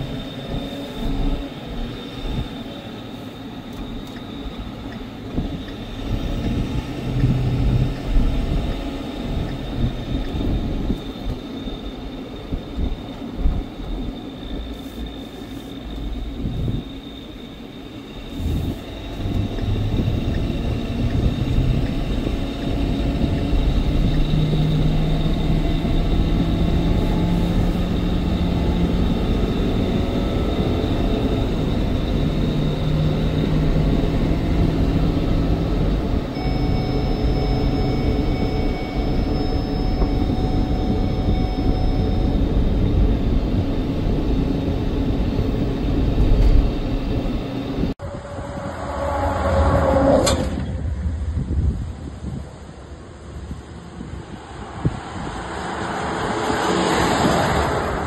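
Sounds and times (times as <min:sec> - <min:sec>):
diesel truck engine running: 0:00.0 - 0:48.4
drivetrain and road noise: 0:00.0 - 0:58.0.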